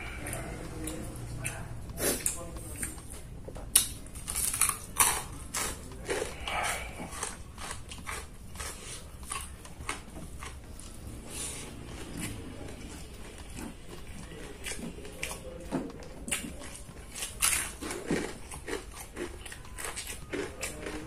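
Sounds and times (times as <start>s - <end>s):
person chewing crunchy food: 0.0s - 21.0s.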